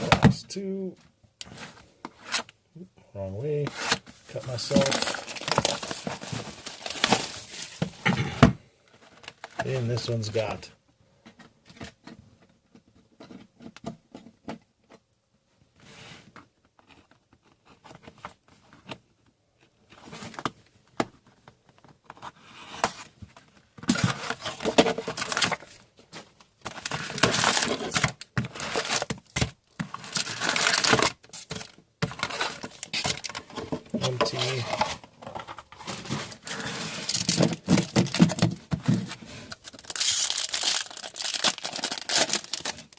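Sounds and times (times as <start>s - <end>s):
plastic wrapping crinkling and tearing: 4.4s - 7.9s, 23.9s - 25.8s, 26.7s - 33.4s, 35.9s - 42.9s.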